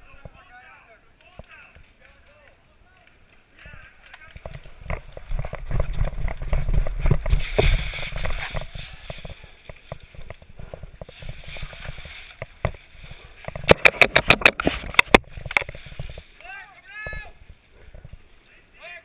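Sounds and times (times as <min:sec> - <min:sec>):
clicks and knocks: 0:13.4 - 0:16.2.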